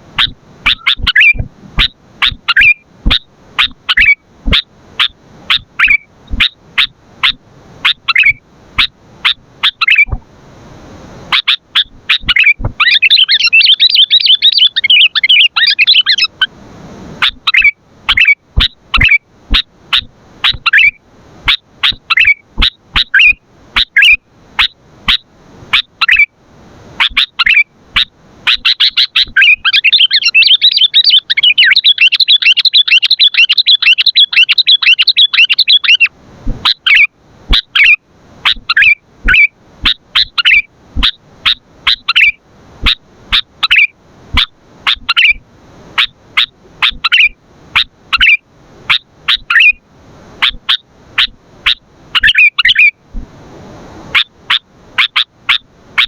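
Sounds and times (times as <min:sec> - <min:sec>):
bird chirping and chattering: 0:00.2 - 0:10.2, 0:11.3 - 0:16.4, 0:17.2 - 0:25.2, 0:25.8 - 0:26.3, 0:27.0 - 0:45.4, 0:46.0 - 0:49.8, 0:50.4 - 0:52.9.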